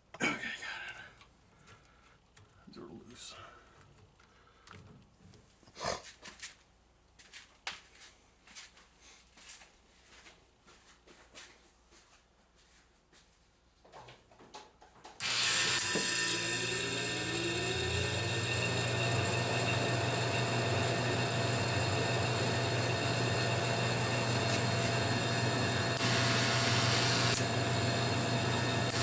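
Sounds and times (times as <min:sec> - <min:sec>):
electric hum: 0:15.2 - 0:29.0
steady whining tones: 0:15.2 - 0:29.0
vending machine running: 0:15.2 - 0:29.0.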